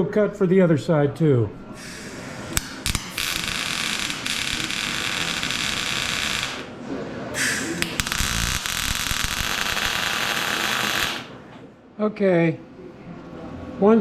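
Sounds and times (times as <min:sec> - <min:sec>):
welding arc crackling and hissing: 0:01.8 - 0:06.7, 0:07.4 - 0:11.4.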